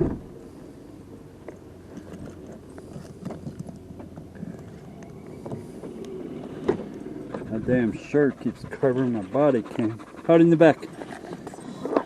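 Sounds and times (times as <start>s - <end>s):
low vehicle hum: 0.0s - 12.0s
small clicks and scrapes: 1.4s - 7.5s, 10.8s - 12.0s.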